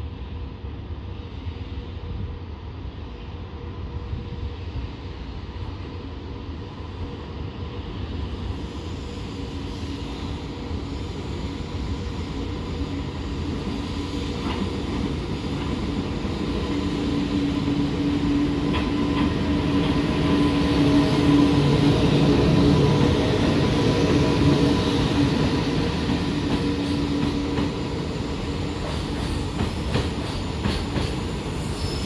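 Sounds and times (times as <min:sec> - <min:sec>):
freight train rumble: 0:00.0 - 0:32.0.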